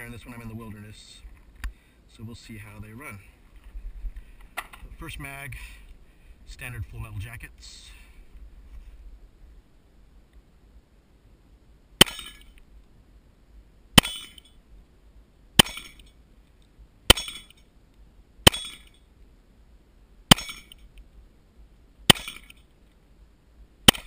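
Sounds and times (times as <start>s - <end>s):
pistol shots: 12.0s - 12.5s, 14.0s - 14.4s, 15.6s - 16.0s, 17.1s - 17.6s, 18.4s - 18.9s, 20.3s - 20.8s, 22.1s - 22.6s.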